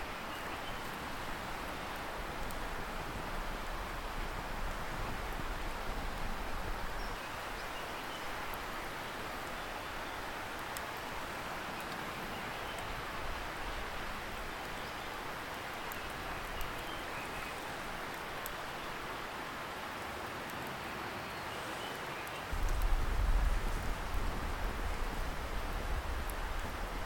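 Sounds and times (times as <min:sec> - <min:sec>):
campfire crackling: 0:00.1 - 0:27.0
distant river hissing: 0:20.8 - 0:27.0
low rumble: 0:22.5 - 0:26.8.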